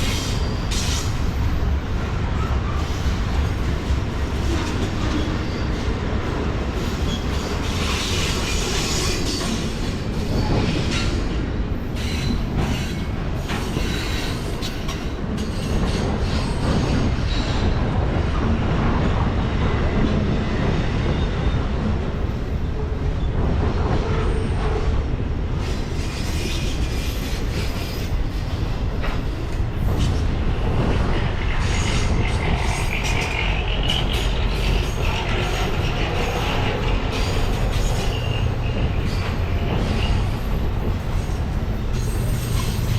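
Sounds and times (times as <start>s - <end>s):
train wheels squealing: 0.0s - 1.7s, 4.4s - 6.0s, 6.8s - 11.2s, 11.8s - 17.8s, 25.6s - 42.9s
train wheels rumbling on rails: 0.0s - 42.9s.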